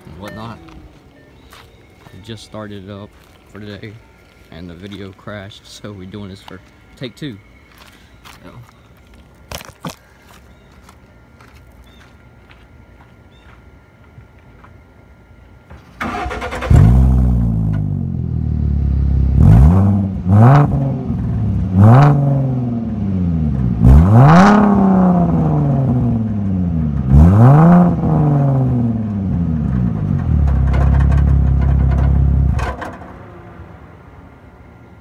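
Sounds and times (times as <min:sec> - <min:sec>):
car engine revving: 0:16.0 - 0:34.0.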